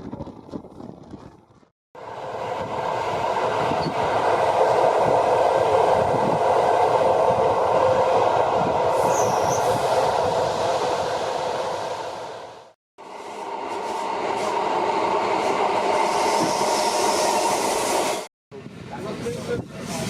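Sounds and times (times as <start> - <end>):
faint high squeal: 9.0 - 9.8.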